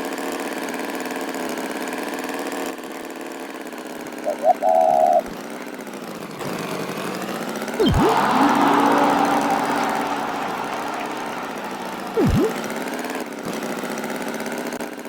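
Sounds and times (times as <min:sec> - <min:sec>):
pitch swoop: 0:07.8 - 0:12.7.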